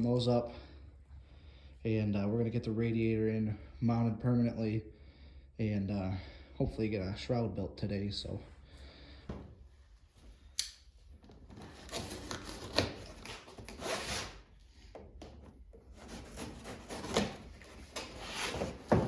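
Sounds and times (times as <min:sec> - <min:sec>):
cardboard rubbing and scraping: 0:11.5 - 0:14.4, 0:15.9 - 0:19.0.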